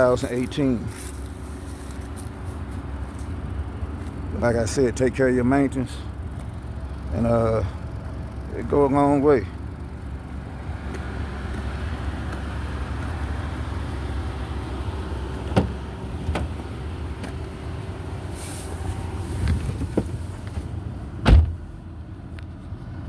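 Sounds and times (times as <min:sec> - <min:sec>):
car engine idling: 0:00.0 - 0:23.0
brief hiss: 0:18.3 - 0:19.5.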